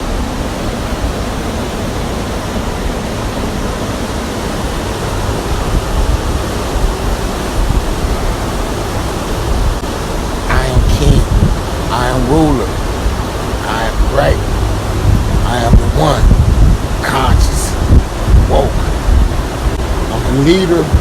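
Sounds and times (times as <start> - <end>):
flowing water rushing: 0.0 - 21.0
low rumble: 9.5 - 20.1.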